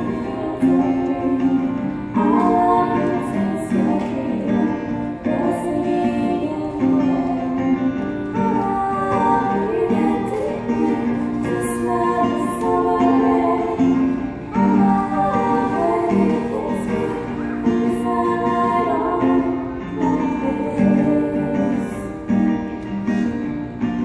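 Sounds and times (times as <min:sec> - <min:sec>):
choir singing: 0:00.0 - 0:07.8, 0:08.4 - 0:22.3.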